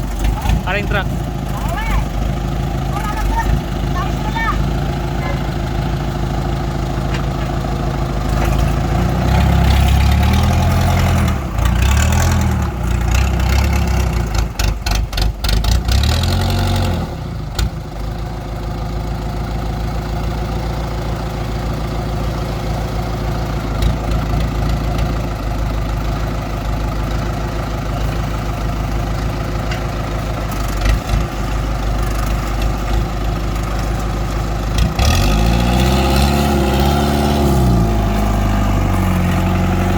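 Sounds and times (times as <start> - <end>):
engine running and revving: 0.0 - 18.4, 22.2 - 25.4, 30.5 - 39.9
rattling clatter: 7.0 - 16.0.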